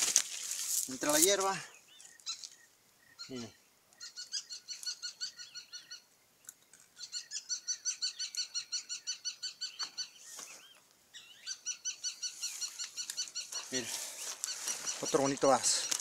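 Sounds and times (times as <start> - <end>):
downward-sliding bird calls: 7.0 - 16.0.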